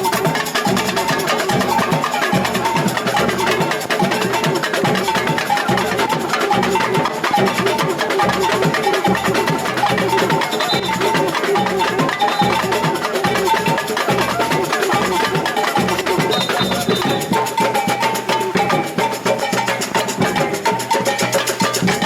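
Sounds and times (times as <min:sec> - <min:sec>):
high clacking pattern: 0:00.0 - 0:22.0
samba percussion band: 0:00.0 - 0:22.0
bass drum beats: 0:00.7 - 0:21.0, 0:21.6 - 0:22.0.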